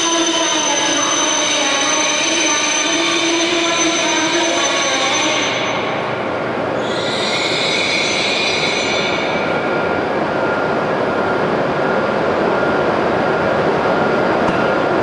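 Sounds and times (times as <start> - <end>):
train brakes squealing: 0.0 - 6.2, 6.8 - 10.8.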